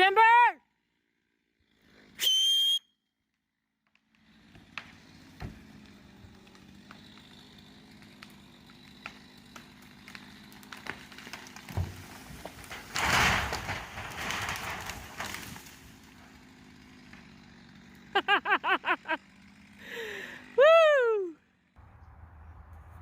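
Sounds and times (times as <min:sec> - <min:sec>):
tree trunk cracking and snapping: 0:03.9 - 0:18.0
tree crashing to the ground: 0:08.6 - 0:17.2.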